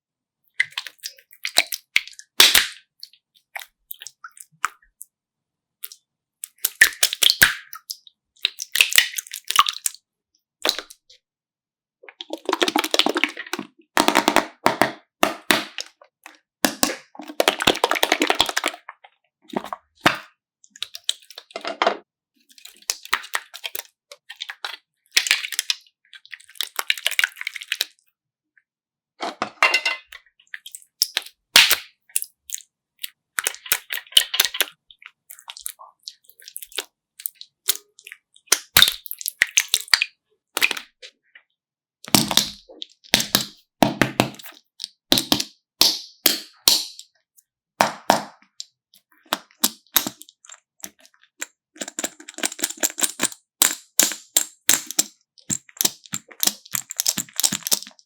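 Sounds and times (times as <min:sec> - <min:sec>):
handling crackles and clicks: 0:49.3 - 0:58.0.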